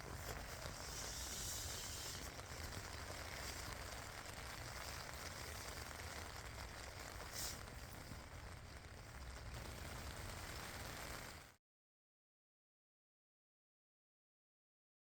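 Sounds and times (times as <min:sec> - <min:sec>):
rain falling in a forest: 0:00.0 - 0:11.6.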